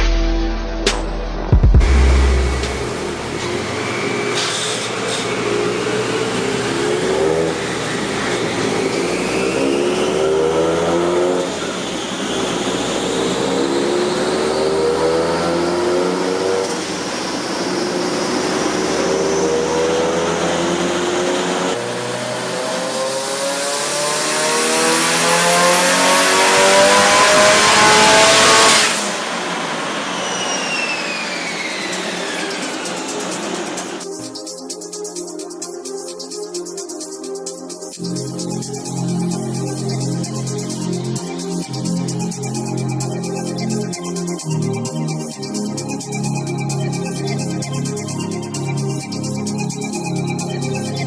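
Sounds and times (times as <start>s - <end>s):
high whine: 0.0s - 24.0s, 26.0s - 51.0s
car engine accelerating hard: 1.6s - 34.1s.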